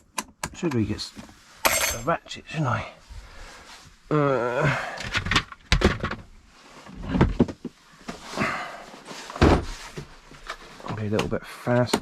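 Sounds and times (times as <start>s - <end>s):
tools sliding and scraping: 1.2s - 2.1s
hand tools clacking: 1.7s - 2.1s.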